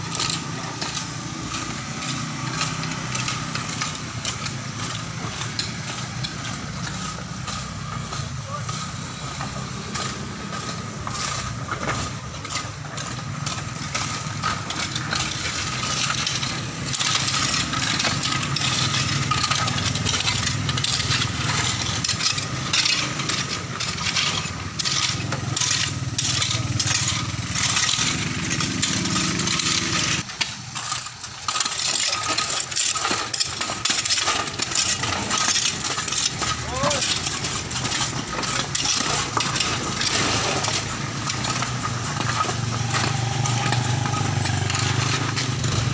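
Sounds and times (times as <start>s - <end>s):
clicking and clinking of stones: 0.0s - 45.9s
engine running: 0.0s - 45.9s.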